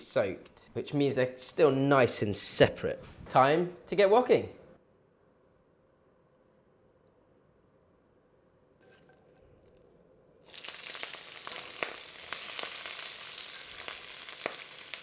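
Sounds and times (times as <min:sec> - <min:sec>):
oil spattering crackles: 0:10.4 - 0:15.0
onions sizzling in hot oil: 0:10.4 - 0:15.0.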